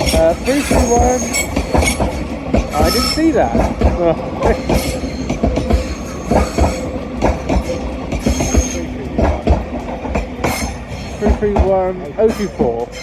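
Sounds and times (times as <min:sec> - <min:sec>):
faint high wheel squeal: 0:00.0 - 0:03.6, 0:04.4 - 0:09.1, 0:10.4 - 0:11.3, 0:12.2 - 0:13.0
train wheels knocking over rail joints: 0:00.0 - 0:13.0.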